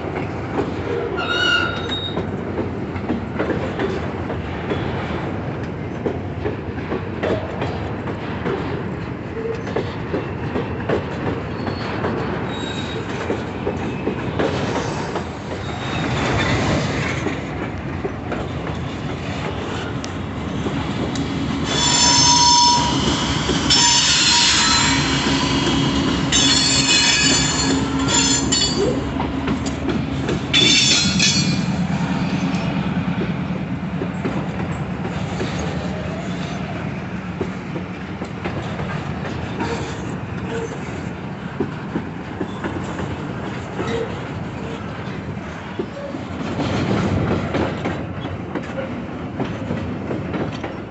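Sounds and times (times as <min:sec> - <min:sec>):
train wheels rumbling and clacking: 0:00.0 - 0:50.9
high-pitched wheel squeal: 0:01.2 - 0:02.2, 0:21.7 - 0:29.0.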